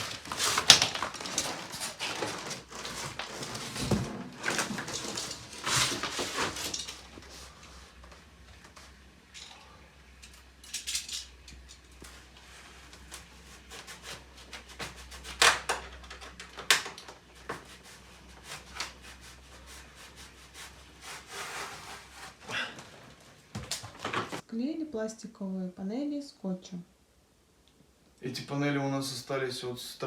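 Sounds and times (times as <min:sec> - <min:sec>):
rubbing and scraping of pieces: 0:00.0 - 0:09.5, 0:10.2 - 0:24.4.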